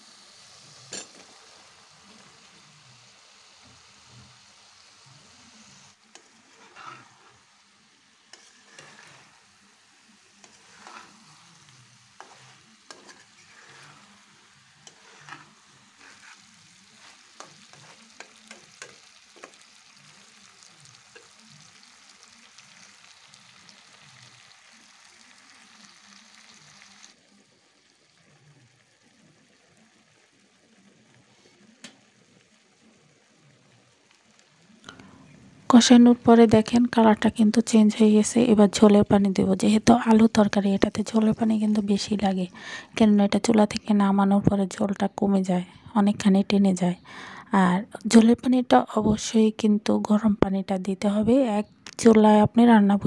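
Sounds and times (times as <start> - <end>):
food sizzling in a pan: 0.0 - 50.4
spatula scraping a pan: 6.1 - 7.6, 8.2 - 9.6, 10.2 - 21.8.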